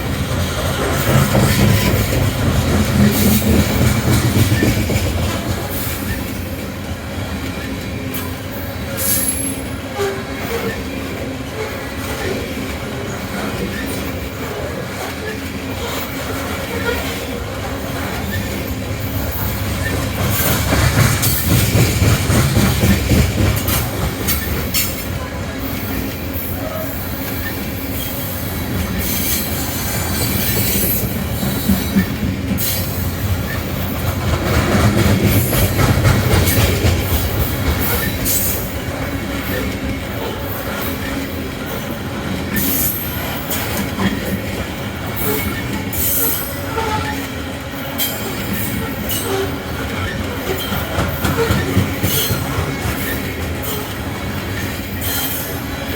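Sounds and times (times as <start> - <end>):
wheels clicking over rail joints: 0.0 - 6.4, 15.0 - 25.2, 28.7 - 41.3, 48.0 - 55.5
freight train rolling past: 0.0 - 55.9.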